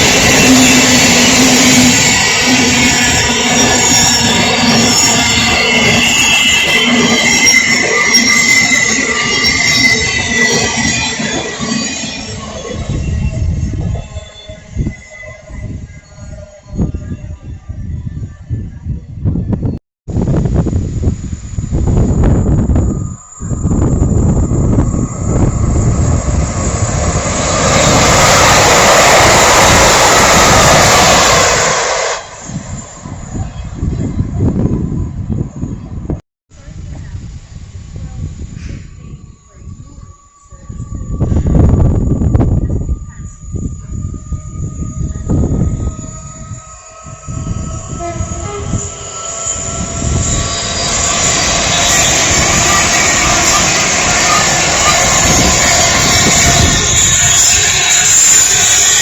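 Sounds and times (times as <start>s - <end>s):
train passing at speed: 0.0s - 19.5s, 20.1s - 59.0s
wind buffeting microphone: 12.3s - 59.0s.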